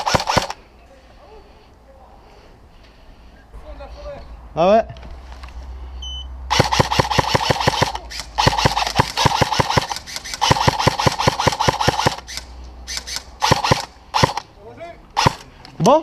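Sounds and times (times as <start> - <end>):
airsoft rifle automatic fire: 0.0 - 0.6, 6.5 - 14.5, 15.2 - 15.4.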